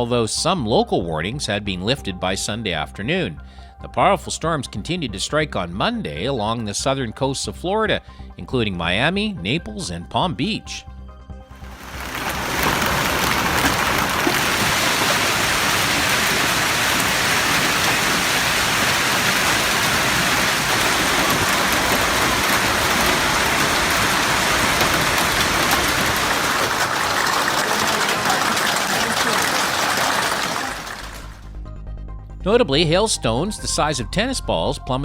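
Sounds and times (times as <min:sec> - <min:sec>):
heavy rain downpour: 0:11.6 - 0:31.4.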